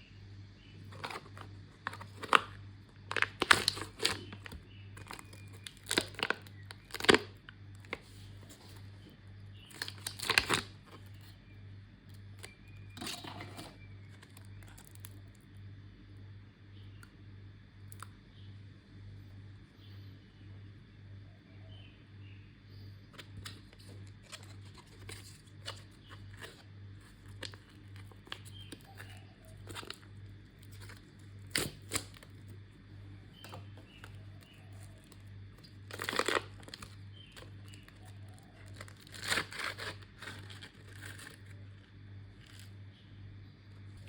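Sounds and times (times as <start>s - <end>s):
steady low hum: 0.0s - 44.0s
plastic packaging crinkling: 0.8s - 11.4s, 12.1s - 15.4s, 23.2s - 32.8s, 33.4s - 42.8s
plastic rustles: 0.8s - 11.4s, 23.2s - 32.6s, 33.4s - 42.8s.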